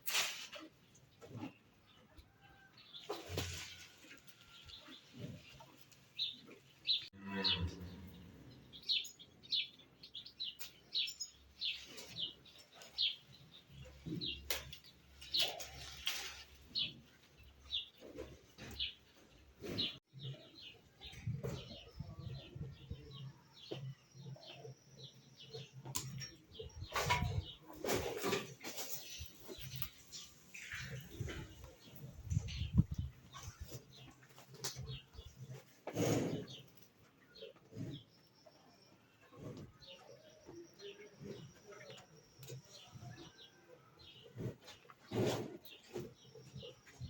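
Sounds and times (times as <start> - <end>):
birds chirping: 0.8 - 47.0.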